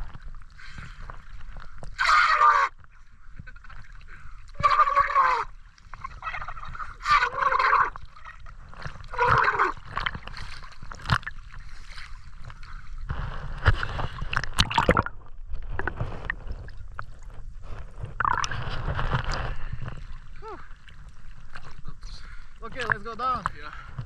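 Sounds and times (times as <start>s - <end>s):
sea water sloshing and gurgling: 0.0s - 24.0s
knocks and splashes: 8.2s - 21.9s.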